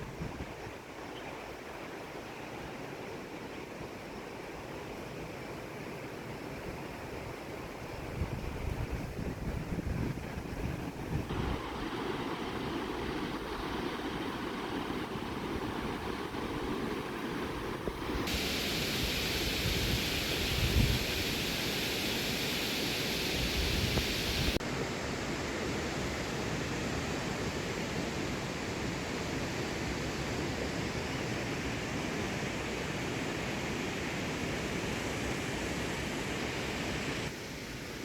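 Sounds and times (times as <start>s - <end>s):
stream water rushing: 10.6s - 29.9s.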